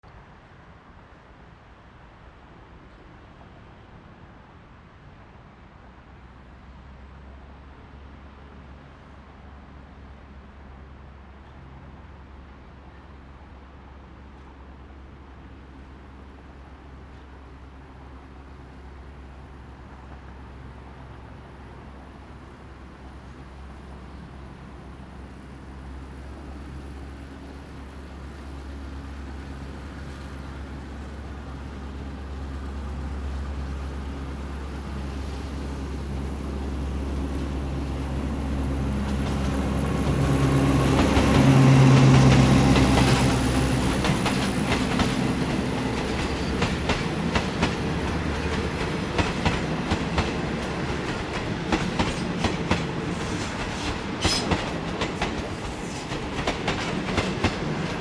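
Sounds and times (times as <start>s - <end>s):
diesel locomotive engine running: 28.0s - 58.0s
train wheels clattering over rail joints: 38.9s - 58.0s.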